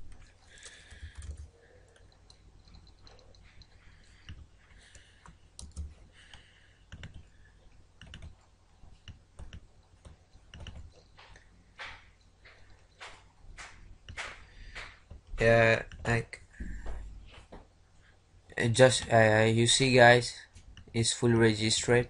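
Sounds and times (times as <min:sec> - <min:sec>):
mouse and keyboard clicking: 0:08.0 - 0:08.4, 0:09.0 - 0:15.0.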